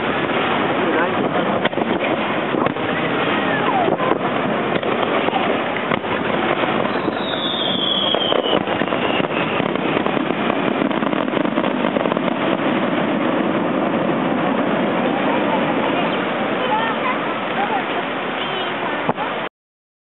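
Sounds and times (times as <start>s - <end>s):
steady dense noise: 0.0s - 19.5s
fireworks pops: 1.5s - 13.4s, 19.0s - 19.3s
falling firework whistle: 6.5s - 12.6s.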